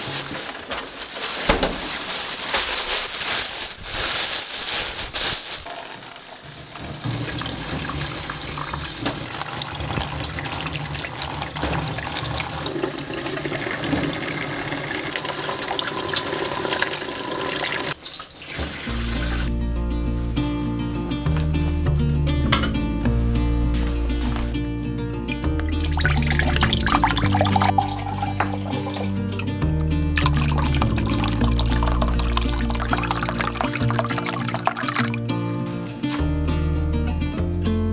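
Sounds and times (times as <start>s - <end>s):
tap water splashing into sink: 5.7s - 19.5s, 25.6s - 29.2s, 30.2s - 35.1s
soft background music: 18.9s - 37.9s.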